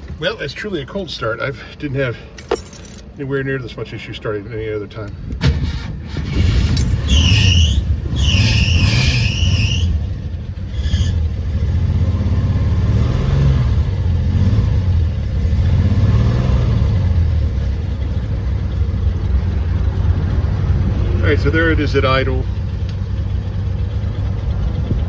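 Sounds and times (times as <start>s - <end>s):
high squeal: 6.5s - 10.1s, 10.7s - 11.2s
truck engine settling to idle: 21.2s - 25.0s.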